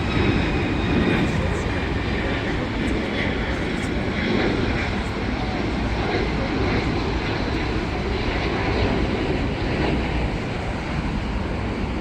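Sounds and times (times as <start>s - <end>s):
jet airliner engines passing: 0.0s - 12.0s.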